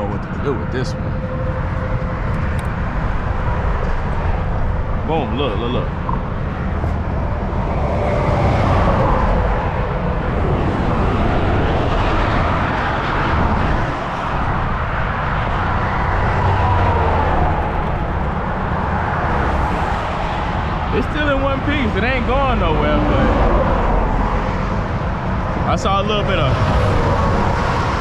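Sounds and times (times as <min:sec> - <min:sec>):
highway traffic rumble: 0:00.0 - 0:28.0
vehicles passing by: 0:00.0 - 0:28.0.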